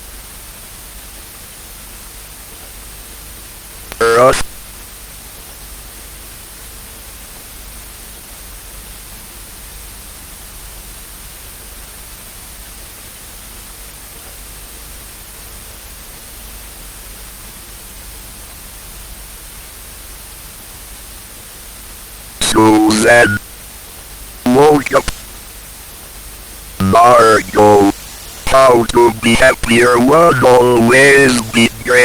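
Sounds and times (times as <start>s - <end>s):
static hiss: 3.9s - 4.6s, 22.4s - 23.5s, 24.5s - 25.4s, 26.8s - 32.0s.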